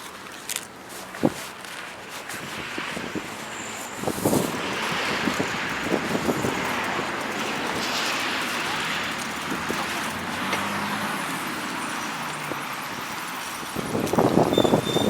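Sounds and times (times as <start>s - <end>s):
vehicle passing: 3.8s - 13.7s.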